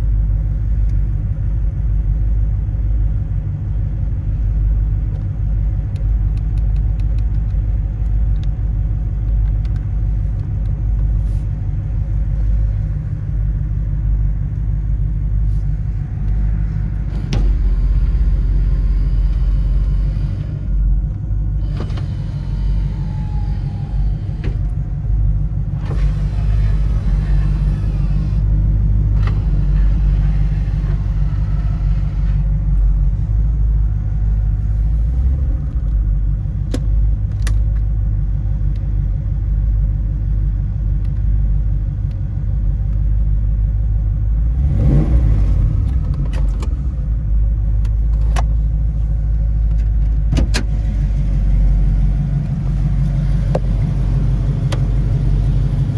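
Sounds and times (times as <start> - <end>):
engine rumbling through exhaust: 0.0 - 55.9
sharp clicks: 5.9 - 8.6.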